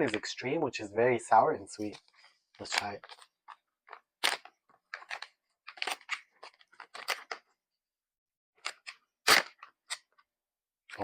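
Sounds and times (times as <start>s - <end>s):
plastic packaging crinkling: 2.1s - 7.5s.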